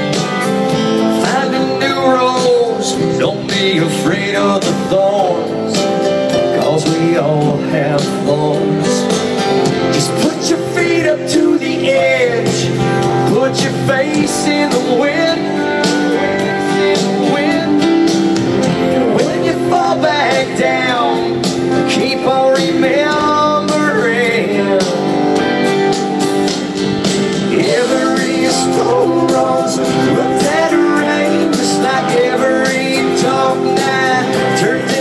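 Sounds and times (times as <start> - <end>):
country rock band playing: 0.0 - 35.0.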